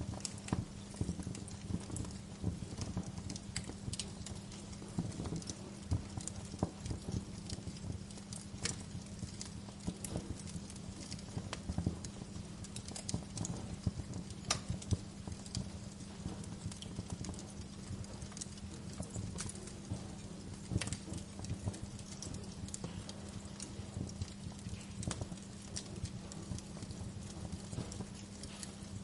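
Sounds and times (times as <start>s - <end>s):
steady low hum: 0.0s - 29.0s
wood fire crackling: 0.0s - 29.0s.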